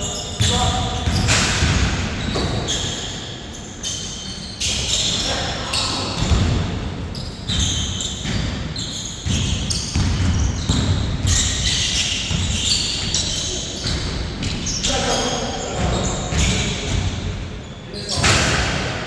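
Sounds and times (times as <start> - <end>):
basketball bouncing in a hall: 0.0 - 19.0.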